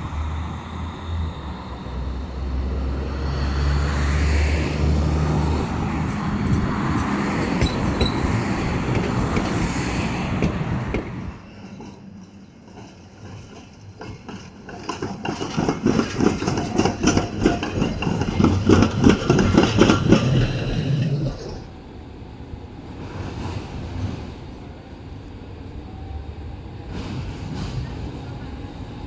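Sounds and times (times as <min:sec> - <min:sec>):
street hum: 0:00.0 - 0:29.0
tram wheels clattering over rails: 0:01.6 - 0:22.0.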